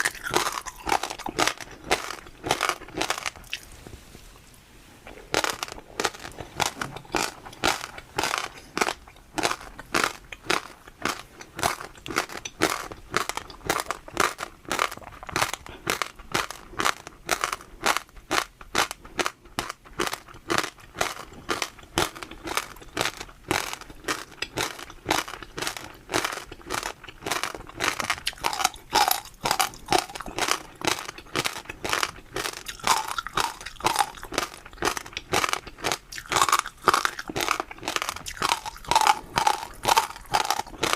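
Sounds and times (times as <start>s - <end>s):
crunchy chewing: 0.0s - 3.8s, 5.0s - 40.9s.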